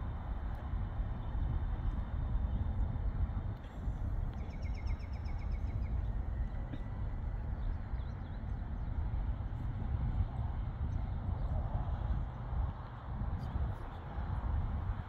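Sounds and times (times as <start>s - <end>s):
steady low rumble: 0.0s - 15.0s
bird singing a trill: 4.4s - 6.0s.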